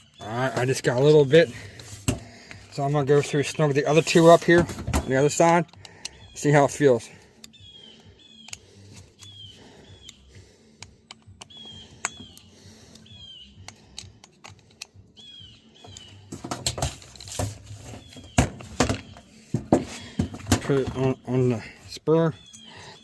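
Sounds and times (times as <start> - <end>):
tools clicking on metal screws: 10.8 - 15.0.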